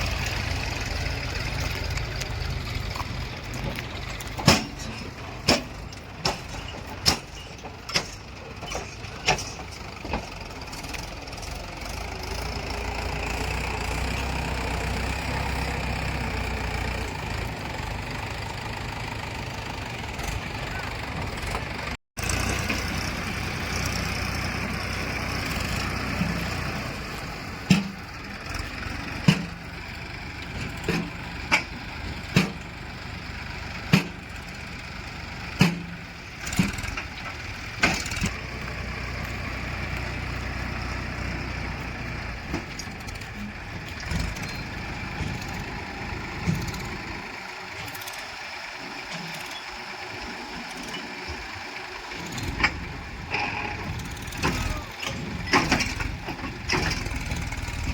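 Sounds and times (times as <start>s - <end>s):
diesel engine running: 0.0s - 57.9s
sharp metal clanks: 4.3s - 10.3s.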